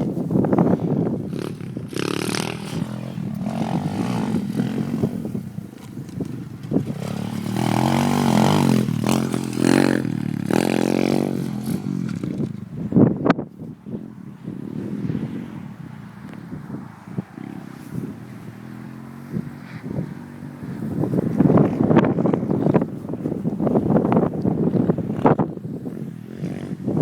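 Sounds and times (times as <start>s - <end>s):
motorbike engine revving: 0.6s - 12.6s.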